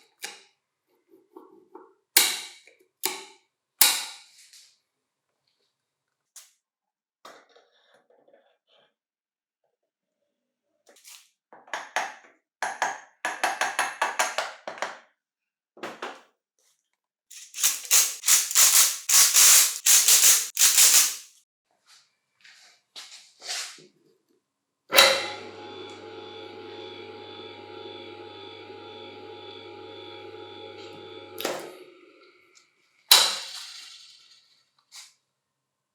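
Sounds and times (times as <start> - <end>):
clicking and rattling: 17.3 - 21.3
steady hum: 25.2 - 32.6.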